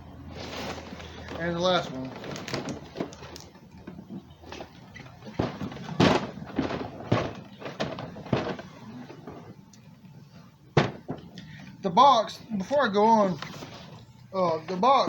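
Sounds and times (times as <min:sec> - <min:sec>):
cases knocking and thudding: 0:02.2 - 0:09.6, 0:10.7 - 0:11.4.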